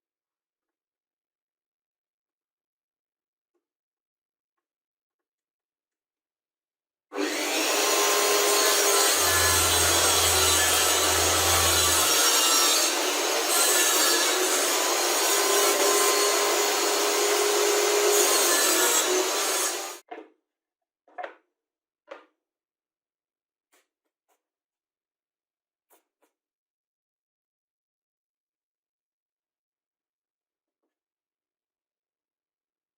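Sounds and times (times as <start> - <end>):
tool scraping material: 7.2 - 20.0.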